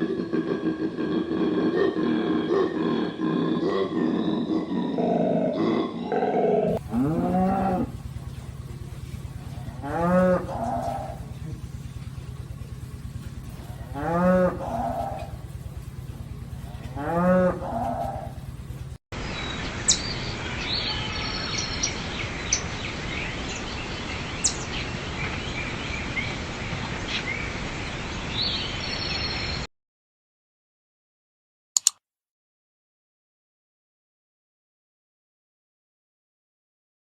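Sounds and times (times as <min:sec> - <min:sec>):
cow mooing: 0:00.0 - 0:08.6, 0:09.2 - 0:11.8, 0:13.5 - 0:15.5, 0:16.6 - 0:18.4
low hum: 0:00.0 - 0:26.1
small birds chirping: 0:03.6 - 0:29.7.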